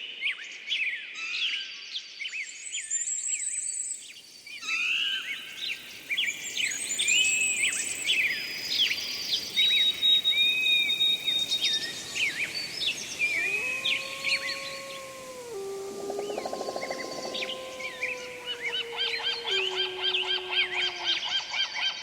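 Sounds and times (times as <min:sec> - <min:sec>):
songbirds chirping and trilling: 0:07.9 - 0:21.8
high steady whistle: 0:10.8 - 0:21.2
wolf howling: 0:11.9 - 0:21.8.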